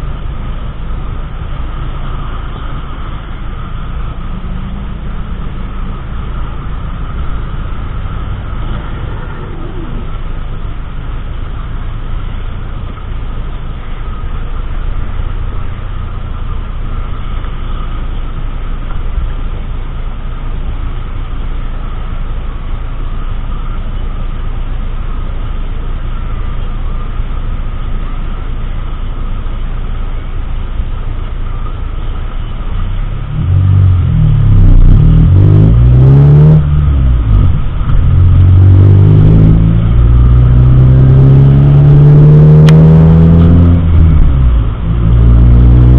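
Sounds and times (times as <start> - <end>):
car engine accelerating: 0.0 - 45.9
road noise inside car: 0.0 - 45.9.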